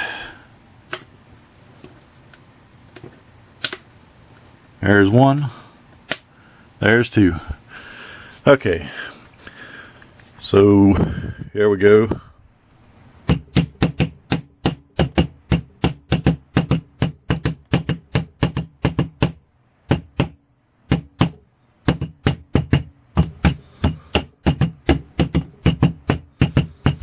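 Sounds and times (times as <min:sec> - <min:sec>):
rapid sharp knocks: 0:13.2 - 0:27.0.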